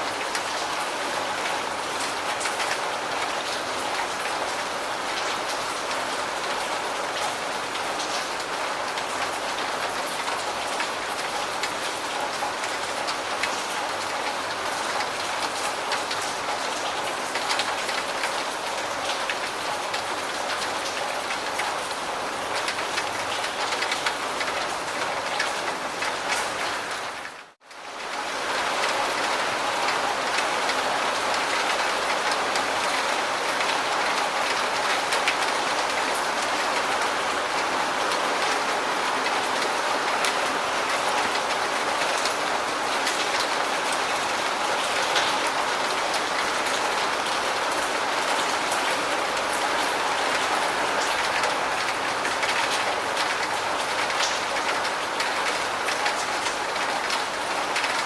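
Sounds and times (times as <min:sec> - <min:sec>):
raindrop ticks: 0:51.0 - 0:58.0.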